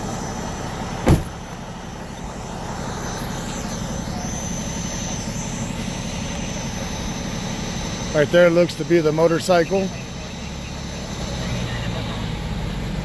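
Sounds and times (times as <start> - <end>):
road noise: 0.0 - 13.0
vehicle engine hum: 0.0 - 13.0
sharp knock: 1.1 - 1.3.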